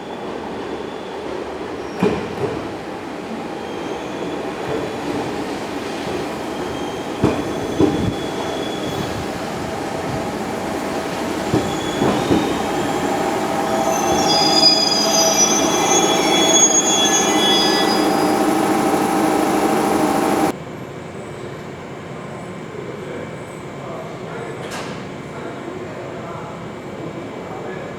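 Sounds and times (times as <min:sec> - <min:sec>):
train rumbling: 0:04.4 - 0:20.5
wheels clacking over rail joints: 0:05.9 - 0:20.5
high-pitched wheel squeal: 0:06.5 - 0:20.5.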